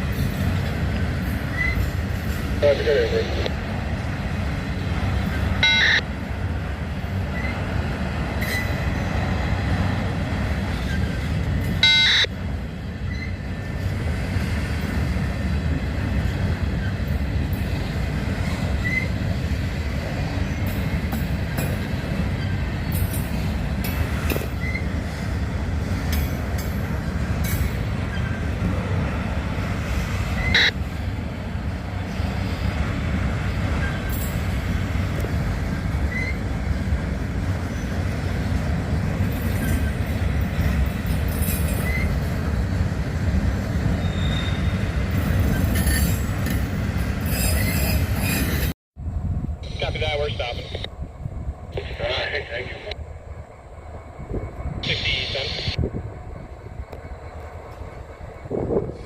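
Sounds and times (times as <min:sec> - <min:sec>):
freight train rumbling: 0:00.0 - 0:59.0
high-pitched train squeals: 0:01.4 - 0:02.8, 0:07.3 - 0:07.6, 0:08.4 - 0:09.3, 0:10.7 - 0:12.3, 0:13.0 - 0:13.5, 0:18.4 - 0:19.2, 0:22.2 - 0:23.4, 0:24.3 - 0:25.2, 0:27.4 - 0:28.6, 0:33.6 - 0:34.6, 0:36.0 - 0:36.8, 0:39.4 - 0:42.4, 0:43.8 - 0:48.7.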